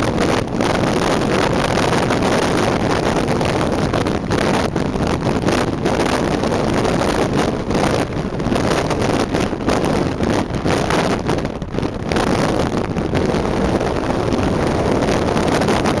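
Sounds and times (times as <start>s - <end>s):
moving vehicle road noise: 0.0s - 16.0s
wind buffeting microphone: 0.0s - 16.0s.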